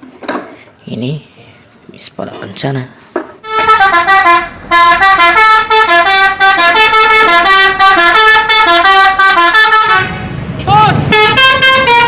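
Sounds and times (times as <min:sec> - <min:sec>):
musical bus horn melody: 0:03.4 - 0:12.0.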